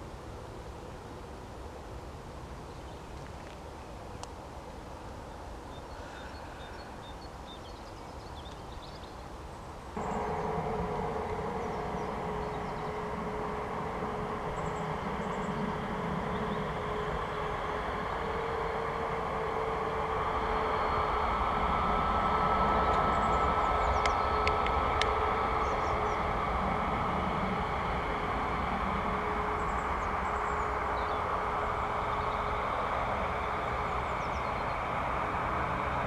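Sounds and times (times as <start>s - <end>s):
faint outdoor rumble: 0.0s - 36.0s
jet airliner engines whining: 9.9s - 36.0s.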